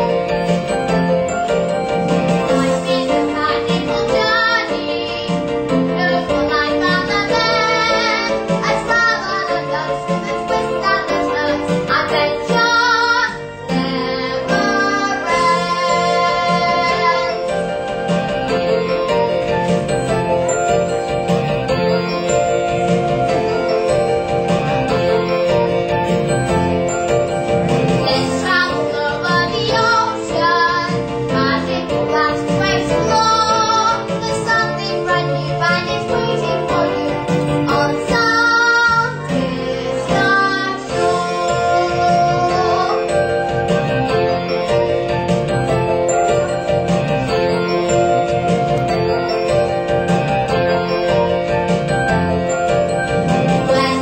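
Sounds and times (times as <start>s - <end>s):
instrumental accompaniment: 0.0s - 54.0s
young voices singing: 2.5s - 5.4s, 6.0s - 17.5s, 28.0s - 43.2s, 53.7s - 54.0s.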